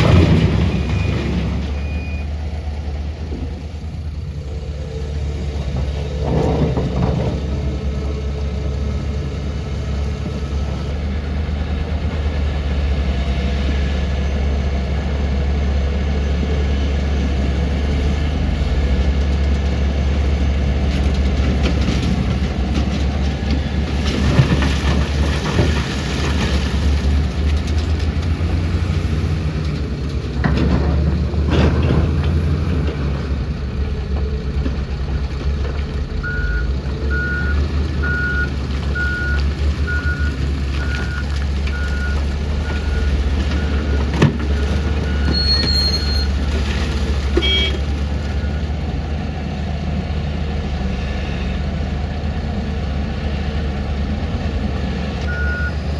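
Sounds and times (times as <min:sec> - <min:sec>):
heavy diesel machinery running: 0:00.0 - 0:55.9
reversing alarm beeping: 0:36.2 - 0:44.0, 0:55.3 - 0:55.9.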